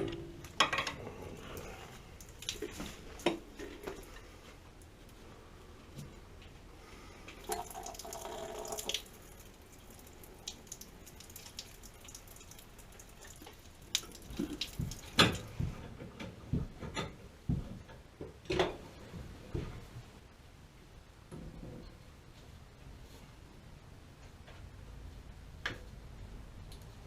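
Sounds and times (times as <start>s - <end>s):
water running: 1.2s - 4.2s, 7.4s - 15.7s.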